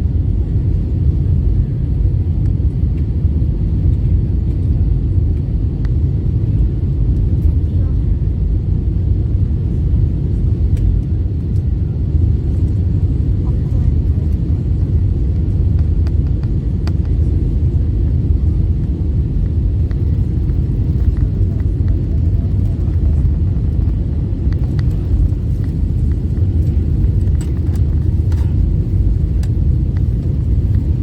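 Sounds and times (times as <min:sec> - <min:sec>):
aircraft cabin rumble: 0:00.0 - 0:31.0.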